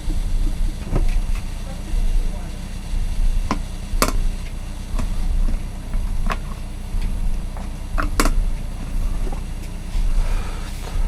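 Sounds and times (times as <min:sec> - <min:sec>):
steady low hum: 0:00.0 - 0:11.0
plastic kettle parts clicking: 0:08.0 - 0:08.4.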